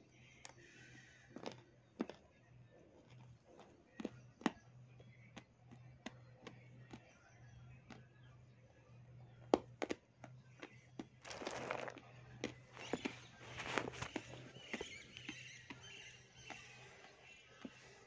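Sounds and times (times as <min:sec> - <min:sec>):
clay being bitten and chewed: 0:01.2 - 0:07.1, 0:09.5 - 0:15.8.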